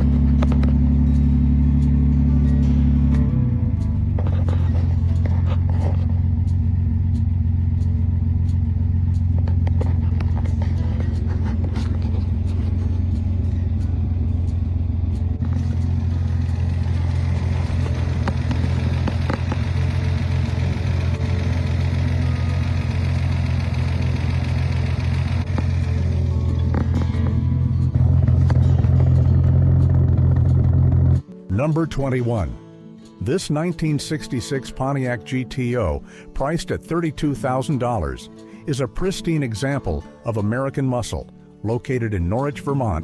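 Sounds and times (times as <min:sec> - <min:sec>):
car engine idling: 0:00.0 - 0:31.2.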